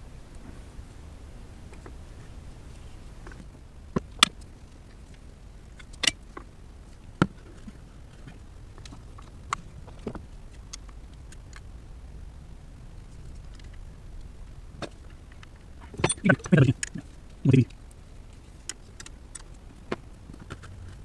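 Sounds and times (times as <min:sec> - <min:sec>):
low steady hum: 0:07.7 - 0:18.6.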